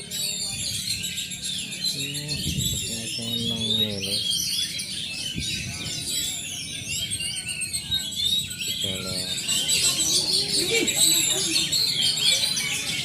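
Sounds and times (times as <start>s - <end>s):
birds singing chorus: 0.0s - 13.0s
low voice-like murmur: 1.7s - 4.2s.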